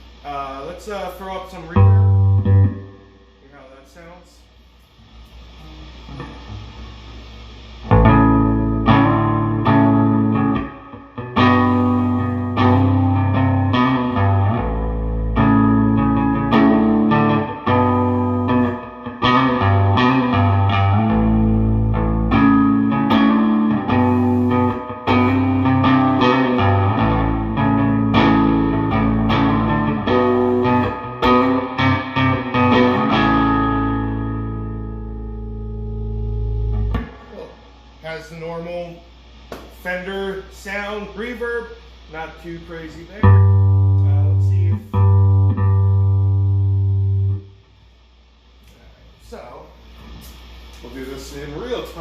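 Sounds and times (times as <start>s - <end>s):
electric bass with reverb: 0.0s - 3.8s, 5.0s - 41.3s, 41.9s - 47.6s.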